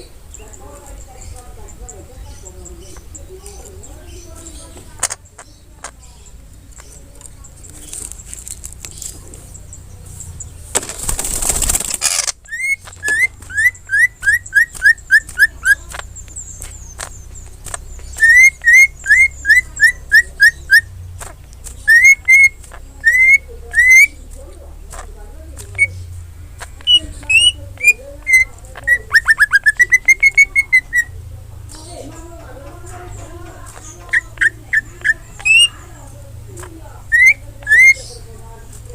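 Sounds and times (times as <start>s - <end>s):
loud rustling: 2.8s - 38.9s
bird whistling song: 12.2s - 32.0s, 33.0s - 36.0s, 36.6s - 38.4s
bird whistling rising notes: 12.4s - 15.8s, 18.1s - 21.0s, 21.9s - 24.2s, 37.1s - 38.0s.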